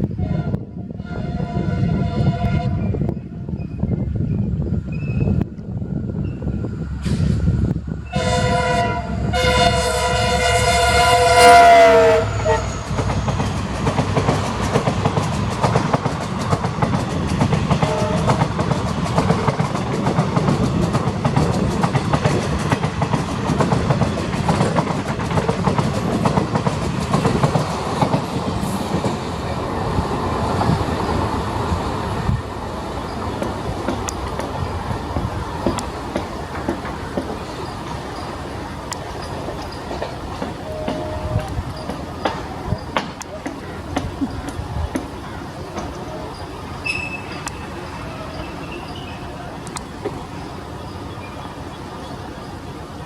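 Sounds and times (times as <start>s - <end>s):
locomotive horn blasts: 0.2s - 2.9s, 8.1s - 13.0s, 17.8s - 18.4s, 40.6s - 41.6s
train wheels clickety-clack: 10.5s - 52.8s.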